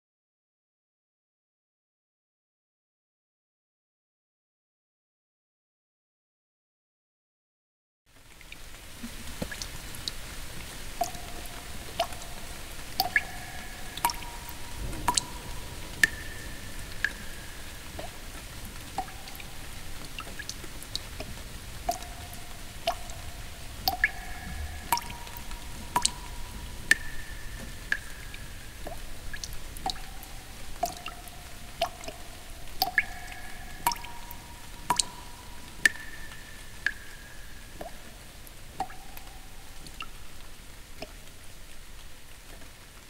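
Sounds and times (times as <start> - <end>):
water drops plinking: 10.8 - 40.4.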